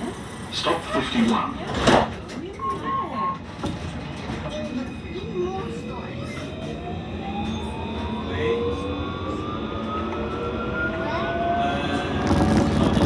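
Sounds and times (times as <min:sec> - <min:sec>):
tram motor whine: 0:03.4 - 0:13.0.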